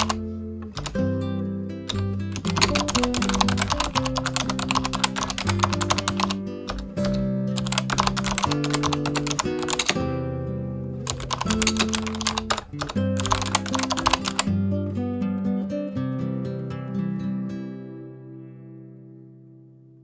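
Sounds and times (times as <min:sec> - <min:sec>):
keyboard key clicks: 0:00.0 - 0:01.0, 0:01.9 - 0:10.0, 0:11.1 - 0:14.5.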